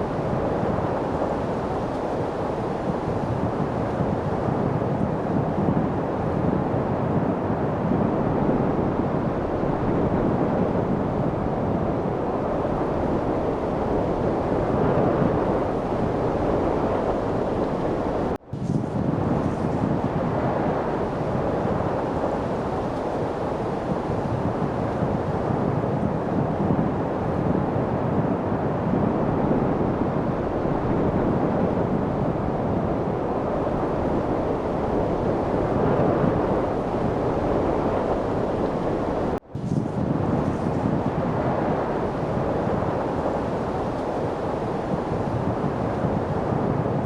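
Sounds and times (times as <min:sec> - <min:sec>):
steady wind rush: 0:00.0 - 0:47.0.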